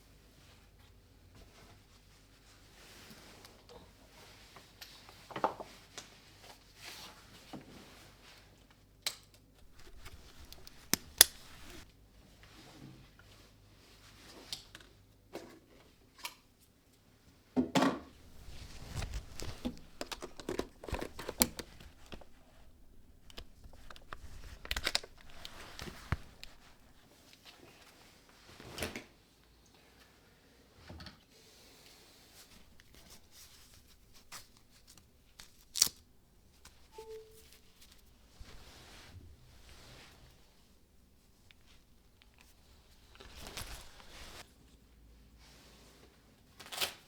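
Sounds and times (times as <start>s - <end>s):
handling clicks and taps: 9.6s - 11.8s, 18.3s - 27.0s.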